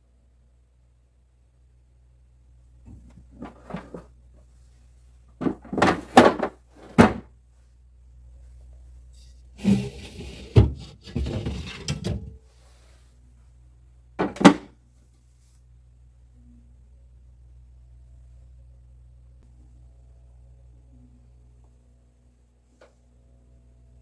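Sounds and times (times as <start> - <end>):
refrigerator drawers clattering: 2.9 - 4.1, 5.4 - 7.3, 9.6 - 12.4, 14.2 - 14.7.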